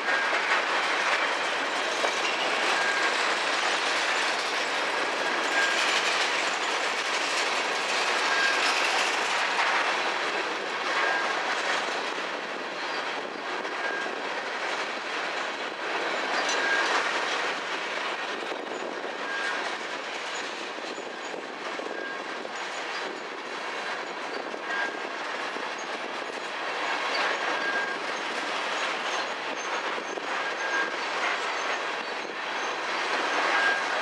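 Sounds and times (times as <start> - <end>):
high-pitched wheel squeal: 2.3 - 3.2, 8.2 - 8.7, 16.3 - 17.0, 24.3 - 25.0, 27.1 - 28.1, 29.1 - 32.7, 33.5 - 34.0.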